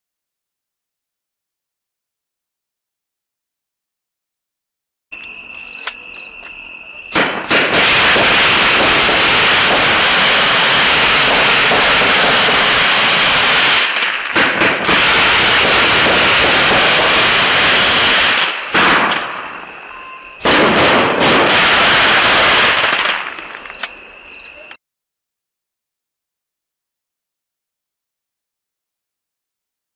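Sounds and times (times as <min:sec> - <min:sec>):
fireworks crackling and bursting: 0:05.7 - 0:24.6.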